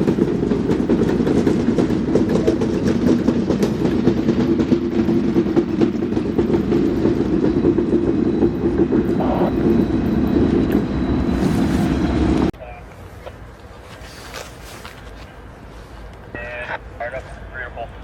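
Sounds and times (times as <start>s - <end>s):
wheels clacking over rail joints: 0.0s - 11.3s
train wheels rumbling on rails: 0.0s - 18.0s.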